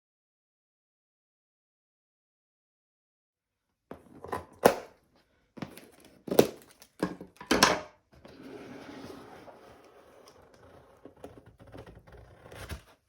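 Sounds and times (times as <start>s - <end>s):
kitchen utensils knocking: 7.0s - 7.9s.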